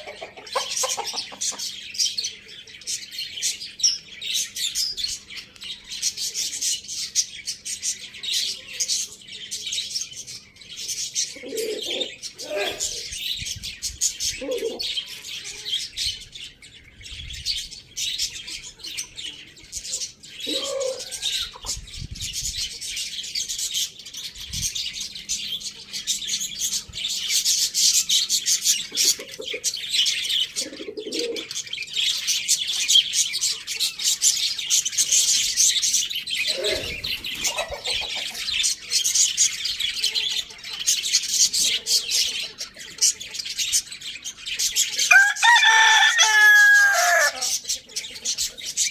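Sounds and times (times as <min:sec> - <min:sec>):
small birds chirping: 0:00.0 - 0:48.9
low bird calls: 0:20.4 - 0:21.7, 0:36.4 - 0:38.6.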